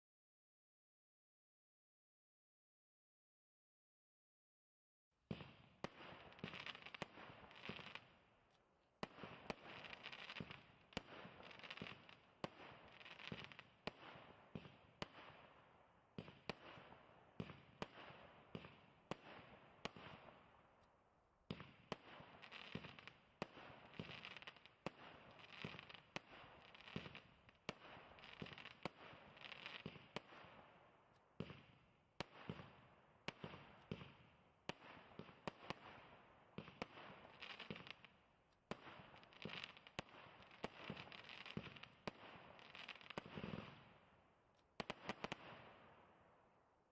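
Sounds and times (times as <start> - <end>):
fireworks shots firing: 5.3 - 8.2, 9.0 - 20.5, 21.5 - 30.8, 31.4 - 38.1, 38.7 - 44.0, 44.8 - 46.1.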